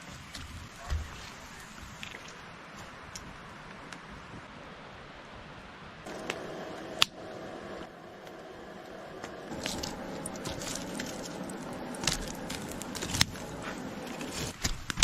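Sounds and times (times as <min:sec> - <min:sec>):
campfire crackling and popping: 0:06.0 - 0:15.0.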